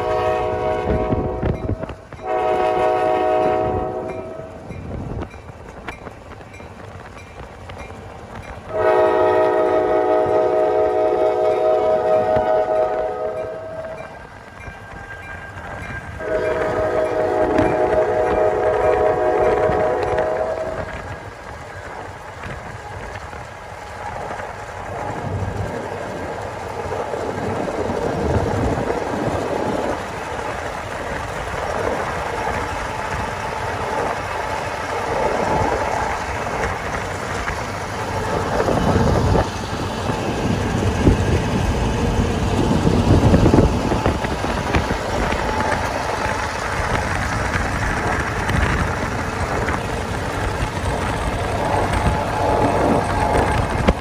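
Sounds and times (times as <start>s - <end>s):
diesel locomotives running: 0.0s - 54.0s
train wheels on rails: 0.0s - 54.0s
car road and wind noise: 4.5s - 8.7s, 19.6s - 54.0s.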